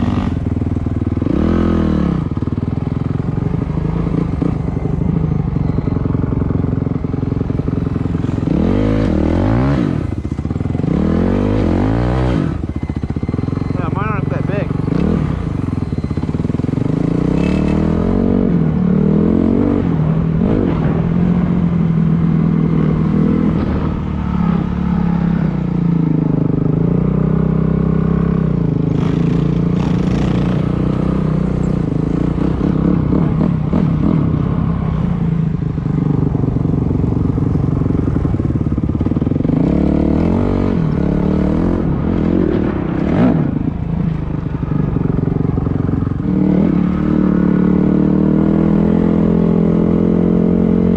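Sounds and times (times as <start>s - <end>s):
dirt bike engine revving: 6.0s - 35.0s, 39.1s - 43.8s.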